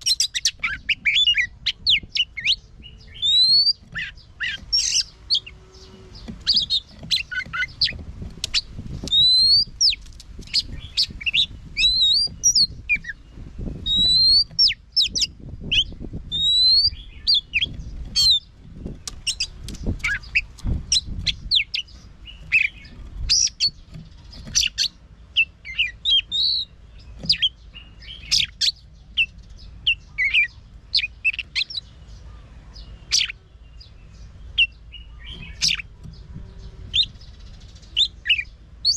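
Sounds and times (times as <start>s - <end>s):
bird singing varied whistles: 0.0s - 7.9s, 8.5s - 13.2s, 13.8s - 18.4s, 24.5s - 29.3s.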